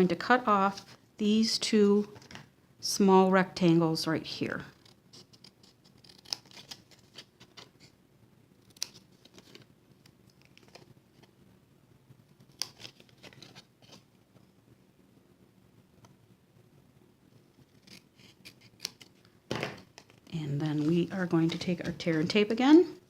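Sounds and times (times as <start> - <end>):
scissors snipping cardstock: 4.8 - 6.9.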